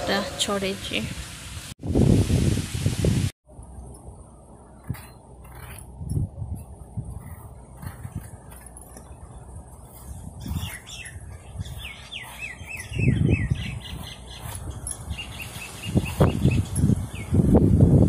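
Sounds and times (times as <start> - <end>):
peeler rubbing mango: 4.8 - 8.8, 9.8 - 17.2
bird chirping: 9.1 - 17.4
bird singing: 9.1 - 17.4.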